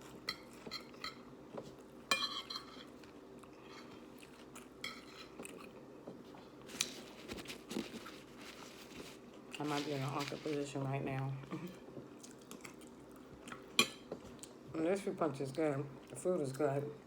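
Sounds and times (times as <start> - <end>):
faint steady hum: 0.0 - 17.0
spoon clinking against a dish: 2.1 - 2.9.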